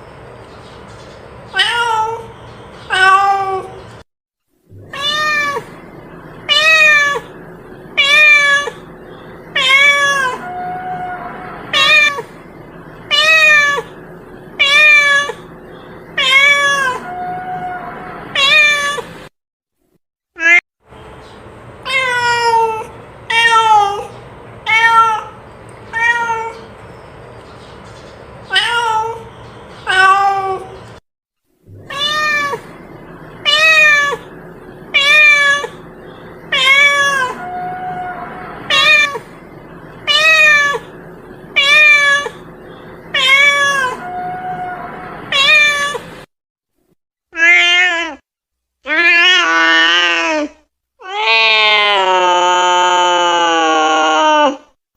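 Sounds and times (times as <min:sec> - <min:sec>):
cat meowing: 0:01.5 - 0:02.3, 0:02.9 - 0:03.8, 0:04.8 - 0:05.8, 0:06.5 - 0:07.3, 0:08.0 - 0:08.9, 0:09.6 - 0:12.3, 0:13.1 - 0:14.0, 0:14.6 - 0:15.4, 0:16.2 - 0:19.1, 0:21.9 - 0:24.1, 0:24.7 - 0:26.7, 0:28.5 - 0:30.7, 0:31.8 - 0:32.7, 0:33.4 - 0:34.3, 0:34.9 - 0:35.8, 0:36.5 - 0:39.3, 0:40.1 - 0:40.9, 0:41.6 - 0:42.5, 0:43.1 - 0:46.1, 0:47.4 - 0:48.2, 0:48.9 - 0:54.6.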